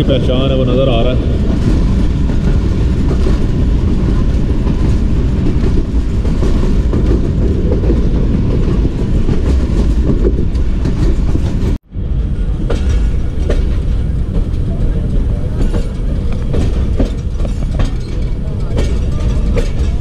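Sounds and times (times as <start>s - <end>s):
train wheels rumbling on rails: 0.0s - 20.0s
faint rail-joint clatter: 4.1s - 20.0s.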